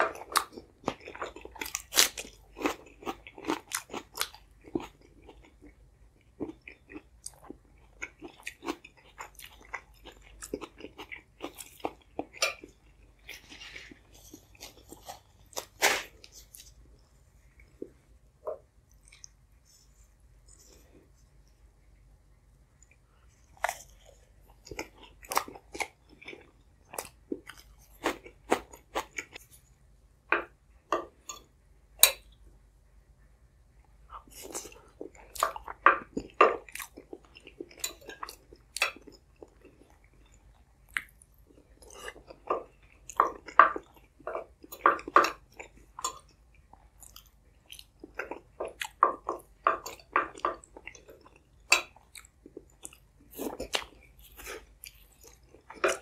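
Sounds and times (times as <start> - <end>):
chewing and biting: 0.0 - 16.8, 23.4 - 29.4, 34.2 - 56.0.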